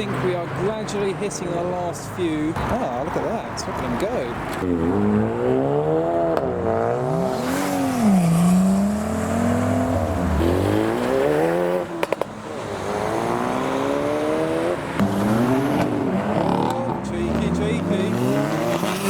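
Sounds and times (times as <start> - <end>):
cars revving and accelerating: 0.0 - 19.0.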